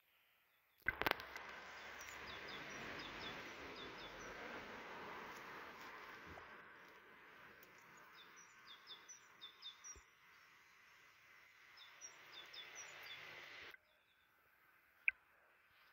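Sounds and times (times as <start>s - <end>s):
faint songbird chirping: 0.0s - 15.9s
steady background hiss: 1.2s - 13.7s.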